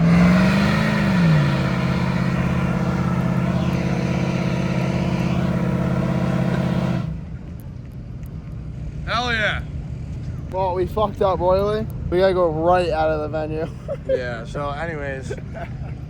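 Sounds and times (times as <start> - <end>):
truck engine revving: 0.0 - 7.4.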